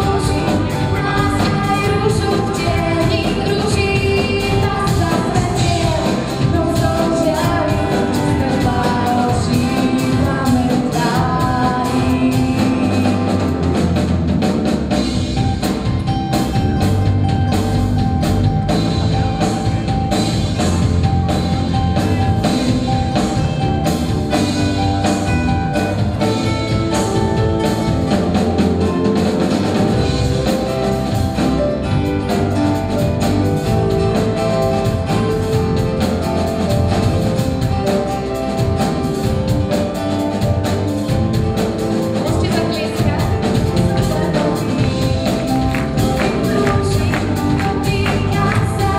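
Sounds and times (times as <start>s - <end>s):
woman singing: 0.0s - 13.6s, 42.2s - 48.9s
drums keeping steady beat: 0.0s - 48.9s
live band playing pop song: 0.0s - 48.9s.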